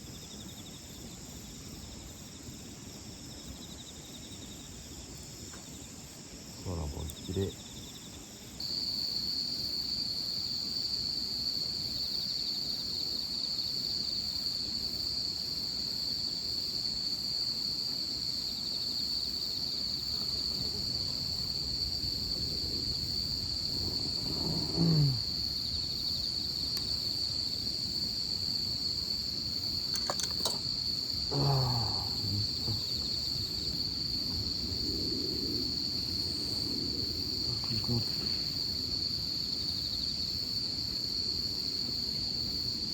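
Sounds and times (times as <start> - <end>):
high-pitched insect chorus: 0.0 - 42.9
person snoring: 24.3 - 25.3, 31.3 - 33.0.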